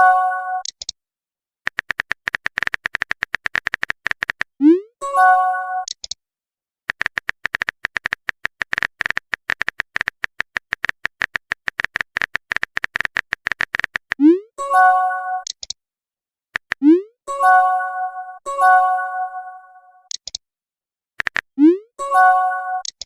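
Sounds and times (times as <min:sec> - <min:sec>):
phone keyboard typing clicks: 0:00.6 - 0:01.0, 0:01.7 - 0:04.5, 0:05.8 - 0:06.2, 0:06.9 - 0:14.2, 0:15.4 - 0:15.8, 0:16.6 - 0:16.8, 0:20.1 - 0:20.4, 0:21.2 - 0:21.6, 0:22.8 - 0:23.0
notification chime: 0:17.3 - 0:20.0, 0:22.0 - 0:22.8.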